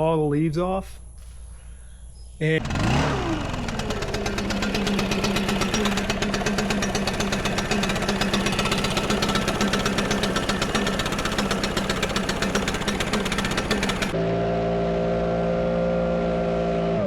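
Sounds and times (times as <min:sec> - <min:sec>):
leaf blower engine idling: 0:01.0 - 0:14.2.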